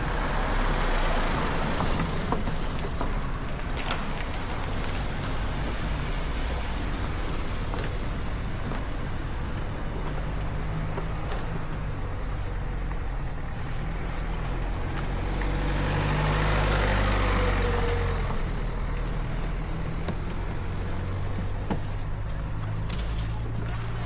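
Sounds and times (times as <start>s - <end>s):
passing vehicle: 0.0s - 24.0s.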